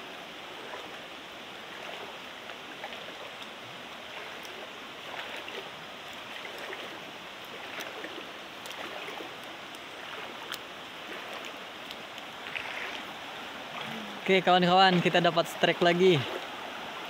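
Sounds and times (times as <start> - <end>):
stream rushing: 0.0 - 17.0
faint sharp ticks: 11.8 - 12.3.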